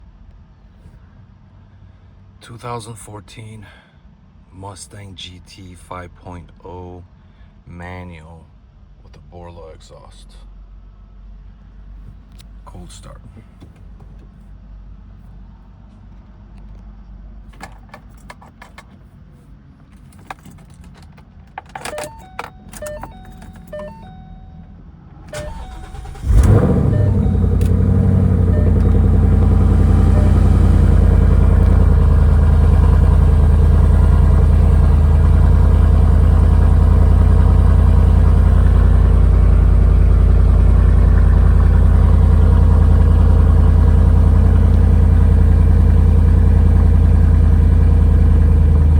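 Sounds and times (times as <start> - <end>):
car engine starting and idling: 11.9 - 48.9
keys jingling: 19.9 - 24.0.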